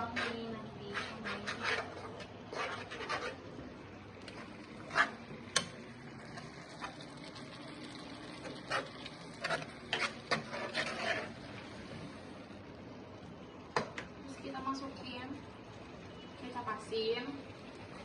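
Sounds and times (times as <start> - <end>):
spatula scraping a pan: 0.0 - 3.6, 4.3 - 5.4, 8.4 - 11.6.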